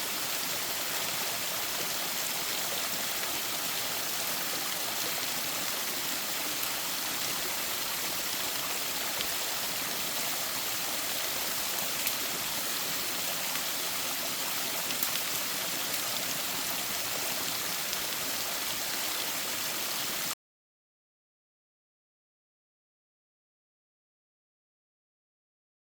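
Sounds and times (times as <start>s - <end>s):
stream water rushing: 0.0s - 20.4s.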